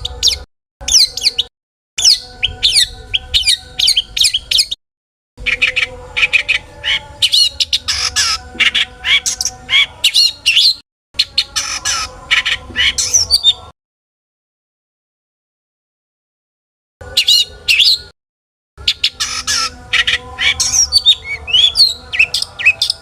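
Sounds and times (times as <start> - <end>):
bird singing chirps and squawks: 0.0 - 4.8, 5.4 - 13.7, 17.0 - 18.1, 18.8 - 23.0.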